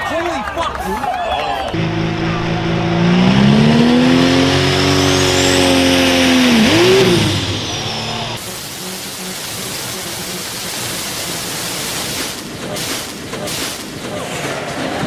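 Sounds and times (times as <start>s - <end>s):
even rumble: 1.7s - 8.4s
tractor engine revving: 1.7s - 14.1s.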